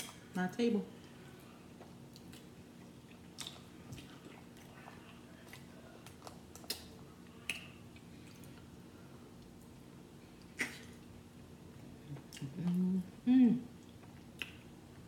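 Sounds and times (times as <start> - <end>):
faint chewing: 1.0 - 8.7
wet mouth smacks: 10.5 - 11.0.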